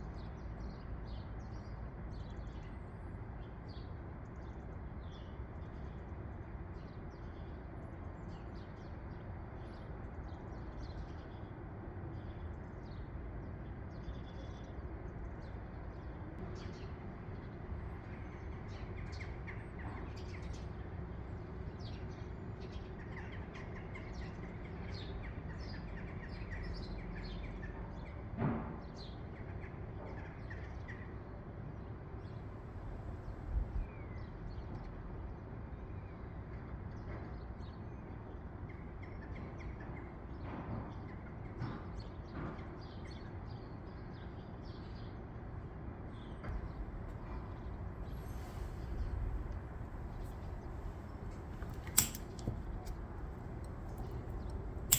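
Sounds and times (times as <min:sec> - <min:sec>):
low background rumble: 0:32.4 - 0:34.0, 0:46.4 - 0:54.9
small birds chirping: 0:46.2 - 0:54.9.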